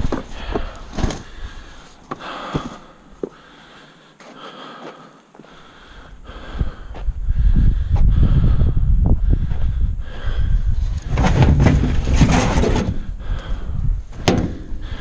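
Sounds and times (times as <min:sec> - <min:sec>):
man panting: 0:00.1 - 0:10.8, 0:13.1 - 0:14.0, 0:14.8 - 0:15.0
footsteps on dry dirt: 0:04.2 - 0:05.6.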